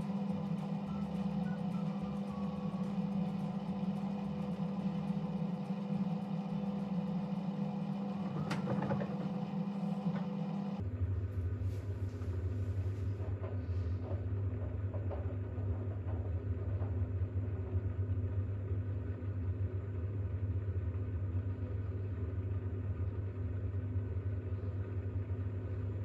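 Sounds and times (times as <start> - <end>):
washing machine motor hum: 0.0 - 26.0
washing machine clunk: 7.9 - 10.7.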